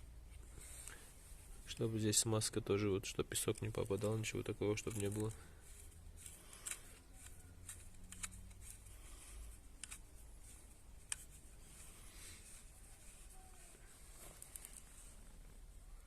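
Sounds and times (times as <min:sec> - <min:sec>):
low steady hum: 0:00.0 - 0:16.0
small parts clicking: 0:03.3 - 0:11.4.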